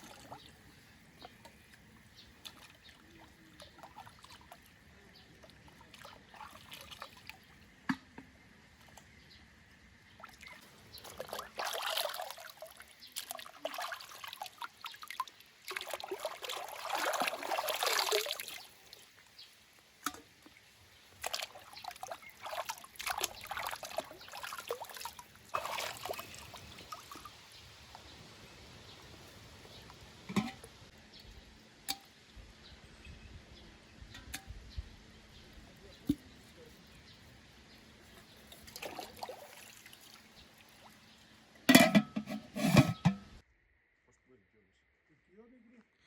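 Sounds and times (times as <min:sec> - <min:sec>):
water pouring: 0:10.2 - 0:19.1, 0:21.2 - 0:27.3, 0:38.5 - 0:41.1.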